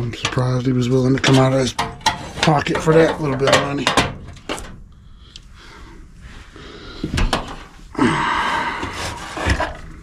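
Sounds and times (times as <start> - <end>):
scraping and rustling: 0.0 - 4.8, 8.5 - 10.0.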